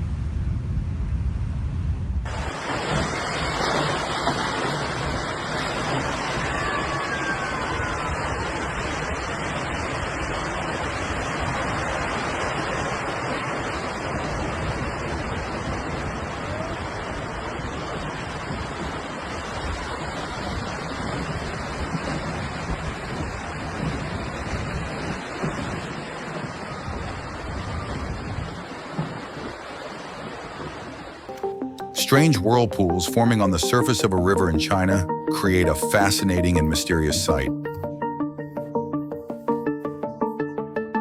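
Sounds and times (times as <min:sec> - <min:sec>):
rushing water roar: 0:02.3 - 0:31.3.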